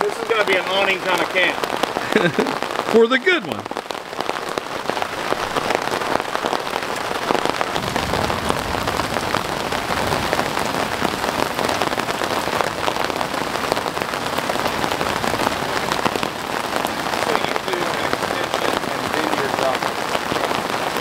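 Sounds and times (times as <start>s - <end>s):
rain on fabric awning: 0.0s - 21.0s.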